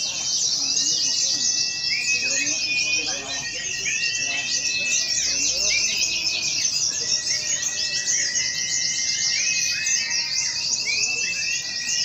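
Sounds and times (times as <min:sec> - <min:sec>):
songbirds chirping and trilling: 0:00.0 - 0:12.0.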